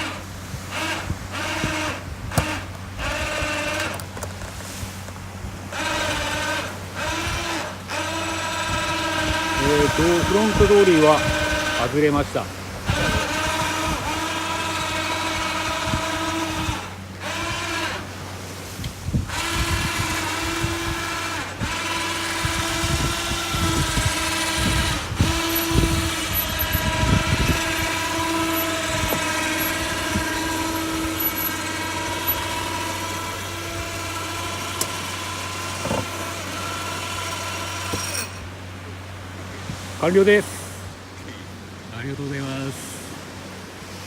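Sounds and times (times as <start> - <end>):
winch whining: 0.0 - 40.5.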